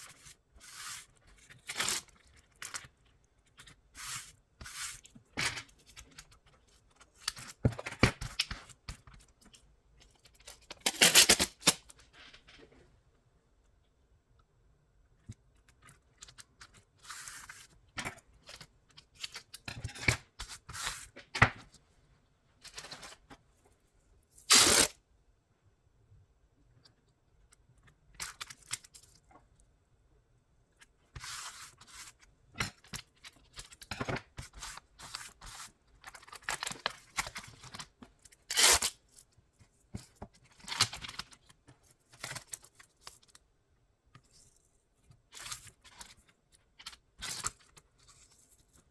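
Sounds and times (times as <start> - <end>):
adhesive tape tearing: 10.8 - 11.8, 24.5 - 25.0, 38.5 - 38.9.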